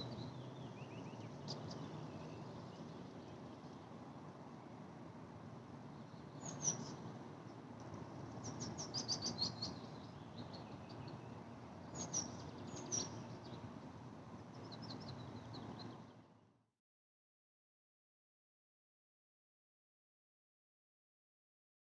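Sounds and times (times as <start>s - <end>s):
songbird singing: 0.0s - 4.8s, 5.8s - 16.4s.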